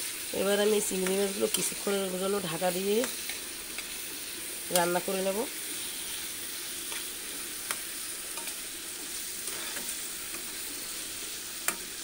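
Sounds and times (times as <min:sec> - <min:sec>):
food sizzling in oil: 0:00.0 - 0:12.0
metal spatula clicking on pan: 0:11.6 - 0:11.9.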